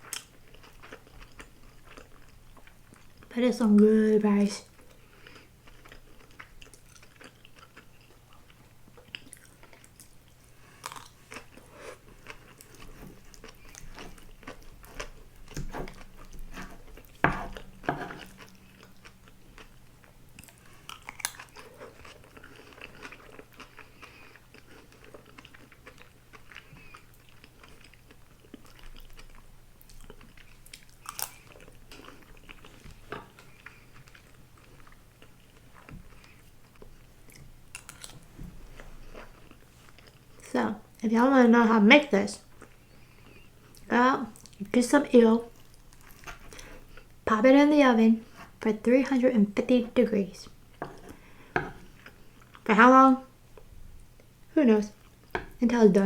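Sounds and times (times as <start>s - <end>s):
wet chewing and mouth clicks: 4.7s - 38.3s.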